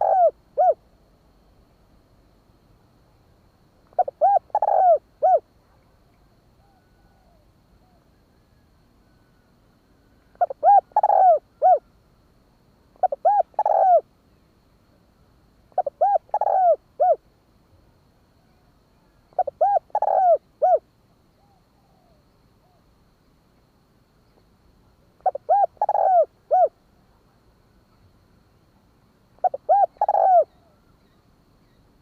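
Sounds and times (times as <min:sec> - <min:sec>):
dove cooing: 0:00.0 - 0:00.8, 0:03.9 - 0:05.5, 0:10.4 - 0:11.9, 0:13.0 - 0:14.1, 0:15.8 - 0:17.2, 0:19.3 - 0:20.8, 0:25.2 - 0:26.8, 0:29.4 - 0:30.8.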